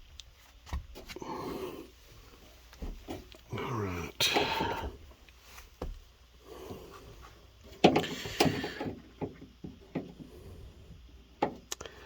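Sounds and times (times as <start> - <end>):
rubber gasket knocking and scraping: 7.6 - 10.4.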